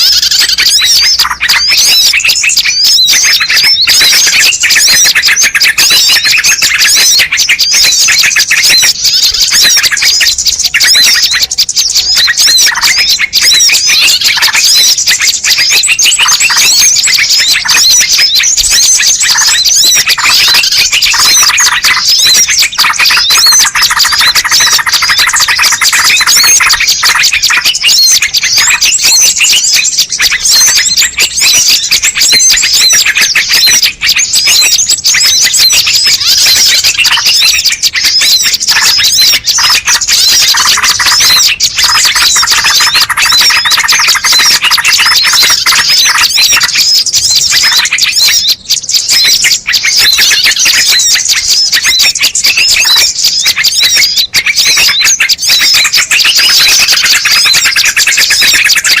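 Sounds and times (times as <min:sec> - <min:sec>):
many small birds chirping: 0:00.0 - 0:59.0.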